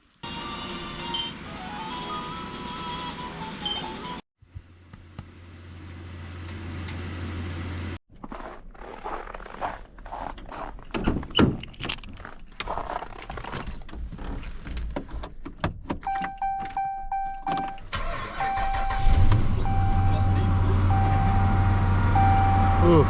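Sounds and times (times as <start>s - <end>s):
dashboard warning chime beeping: 0.4s - 4.2s, 16.0s - 23.0s
handling clicks and rattles: 10.4s - 17.9s
keys jangling: 11.5s - 13.8s
car engine starting and humming: 14.4s - 23.0s.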